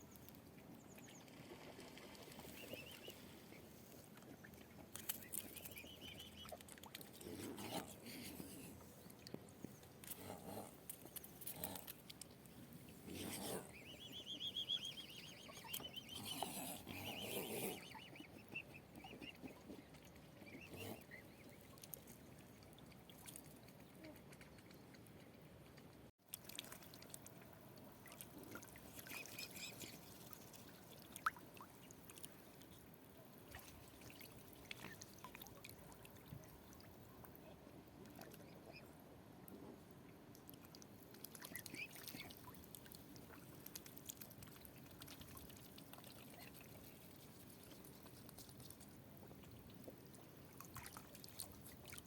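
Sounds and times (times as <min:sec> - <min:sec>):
faint waterfowl calls: 0:13.0 - 0:21.9, 0:41.3 - 0:42.6
wavering high bird call: 0:13.7 - 0:16.3.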